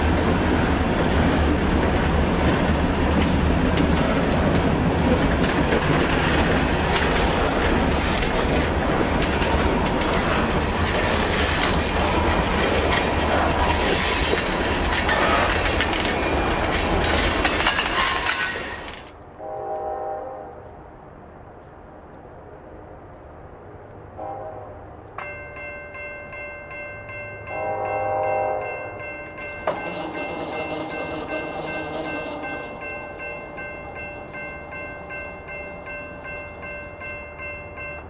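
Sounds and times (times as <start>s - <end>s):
train wheels rushing on rail: 0.0s - 37.3s
diesel locomotive drone: 0.0s - 38.0s
rapid clicking over rail joints: 0.2s - 19.2s.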